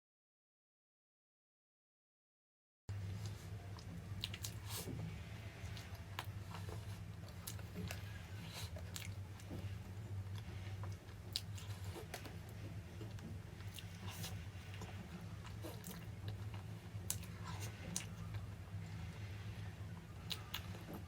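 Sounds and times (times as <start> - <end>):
steady low hum: 2.9 - 21.0
person chewing crunchy food: 3.2 - 4.9, 5.6 - 9.7, 10.3 - 18.6.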